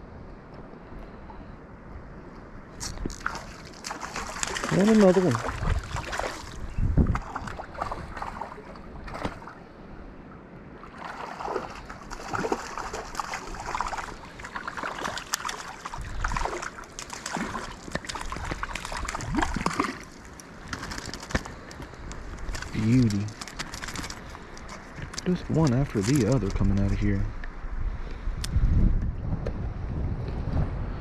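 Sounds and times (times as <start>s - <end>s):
fish splashing in water: 2.8s - 9.6s, 10.9s - 21.6s, 22.4s - 24.8s.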